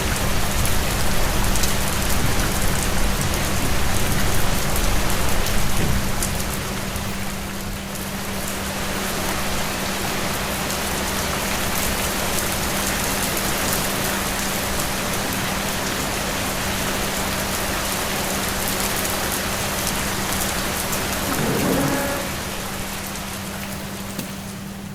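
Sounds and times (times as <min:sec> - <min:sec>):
rain falling: 0:00.0 - 0:24.9.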